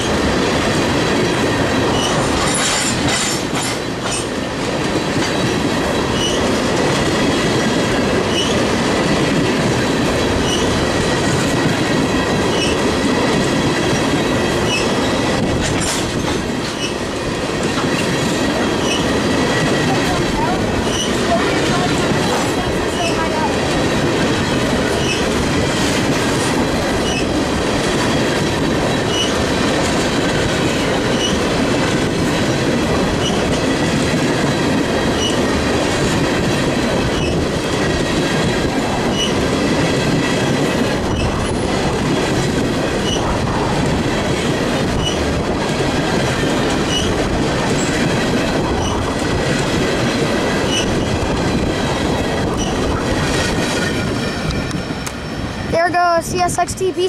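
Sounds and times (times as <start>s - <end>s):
freight train rumbling past: 0.0s - 57.0s
high wheel squeaks: 6.1s - 6.5s, 8.3s - 8.6s, 10.4s - 10.7s, 14.7s - 14.9s, 18.8s - 19.1s, 20.8s - 21.9s, 25.0s - 25.3s, 27.0s - 27.3s, 29.1s - 29.3s, 31.1s - 31.4s, 39.1s - 39.4s, 45.0s - 45.2s, 46.9s - 47.2s, 50.7s - 51.2s, 52.4s - 53.1s.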